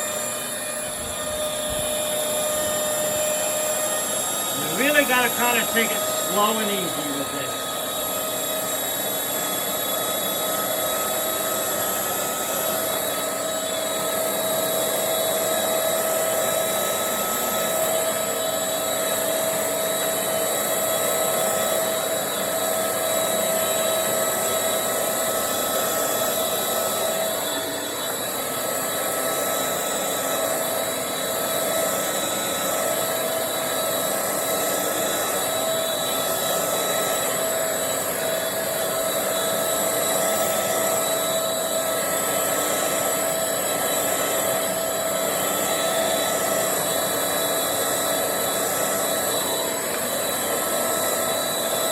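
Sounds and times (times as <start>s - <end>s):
stick vacuum motor whining: 0.0s - 51.9s.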